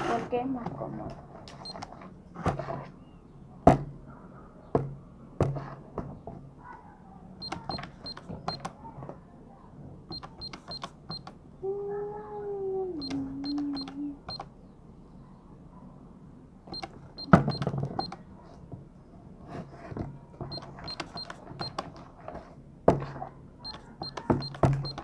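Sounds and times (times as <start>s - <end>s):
short high electronic beeps: 7.4s - 8.7s, 16.7s - 18.2s, 23.7s - 25.0s.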